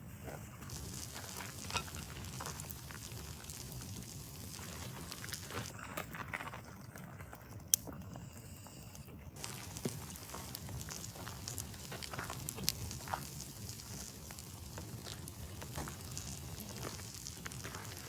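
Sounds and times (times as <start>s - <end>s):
campfire crackling and popping: 0.6s - 18.0s.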